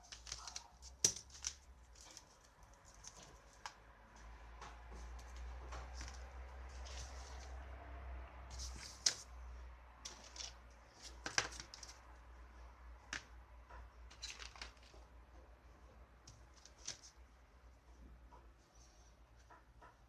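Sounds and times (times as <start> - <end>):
low steady hum: 0.0 - 20.0
small objects clicking and rustling: 14.1 - 15.0.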